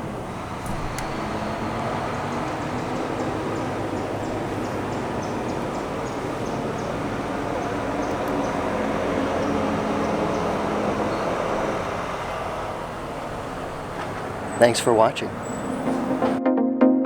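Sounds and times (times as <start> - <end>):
outdoor background rumble: 0.0 - 16.4.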